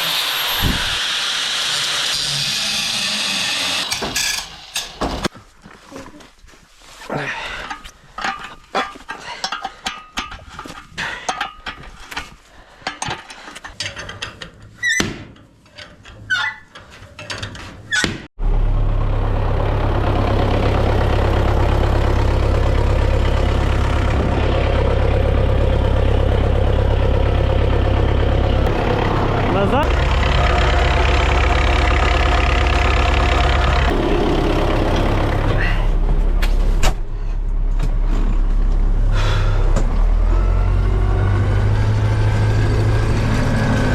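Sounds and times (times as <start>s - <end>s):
short squeaks: 16.2s - 16.8s
tractor engine running: 18.4s - 43.9s.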